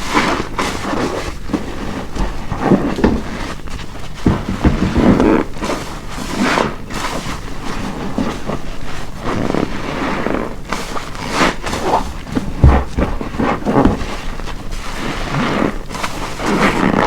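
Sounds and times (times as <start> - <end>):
soapy sponge squelching: 0.0 - 17.0
dull thump: 11.8 - 14.2.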